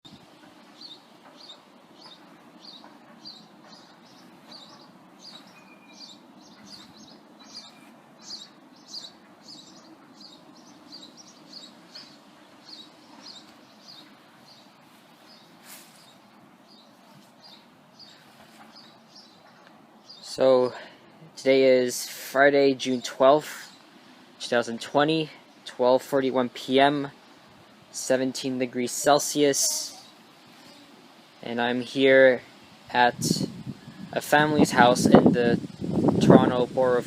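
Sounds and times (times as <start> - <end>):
songbird chirping: 0.1 - 35.0.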